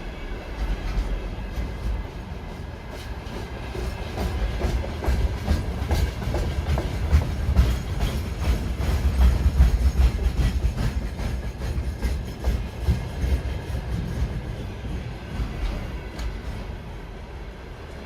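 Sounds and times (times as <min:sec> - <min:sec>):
train passing: 0:00.0 - 0:18.0
wheels clicking over rail joints: 0:00.6 - 0:14.4.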